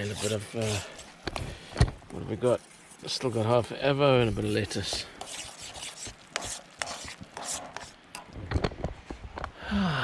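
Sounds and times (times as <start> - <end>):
utensil scraping cookware: 0.0 - 1.1, 4.5 - 7.9.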